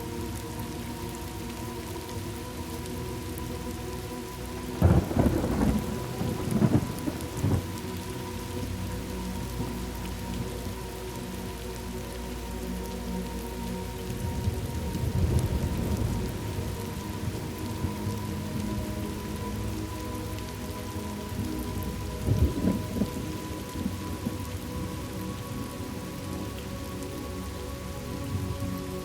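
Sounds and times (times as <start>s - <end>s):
steady rain: 0.0s - 29.0s
thunder crack and rumble: 4.8s - 7.6s, 22.3s - 23.2s.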